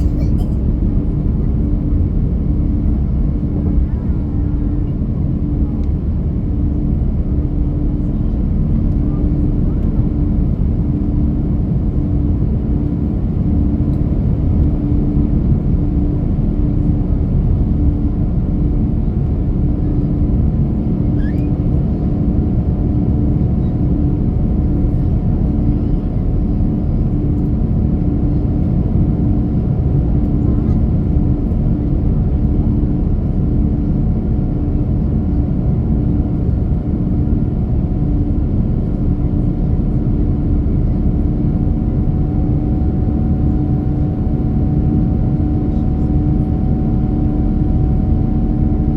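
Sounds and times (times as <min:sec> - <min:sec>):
airliner cabin noise: 0:00.0 - 0:06.2.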